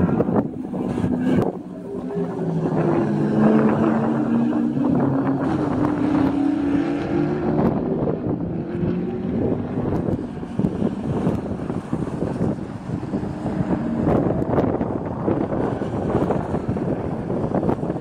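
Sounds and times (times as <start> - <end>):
car engine accelerating hard: 0.0 - 18.0
wind on microphone: 0.0 - 18.0.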